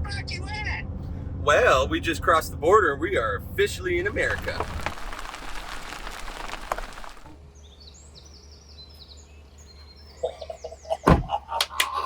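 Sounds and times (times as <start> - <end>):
songbird chirping: 4.0 - 11.1.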